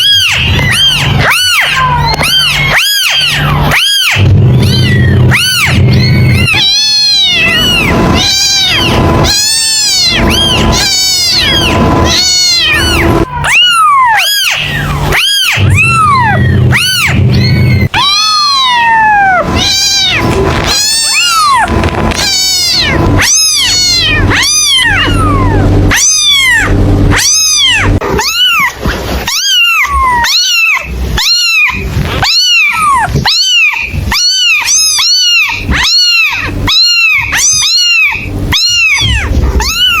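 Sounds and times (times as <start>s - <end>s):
kittens meowing: 0.0s - 40.0s
steady low hum: 1.8s - 13.4s, 14.6s - 28.2s, 35.1s - 40.0s.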